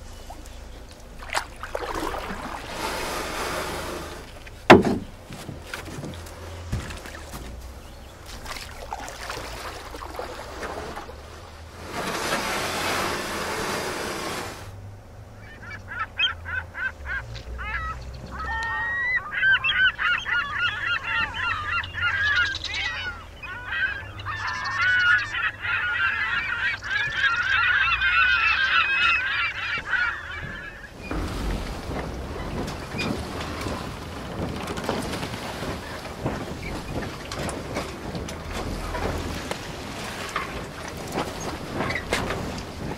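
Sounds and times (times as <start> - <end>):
geese honking: 15.4 - 42.9.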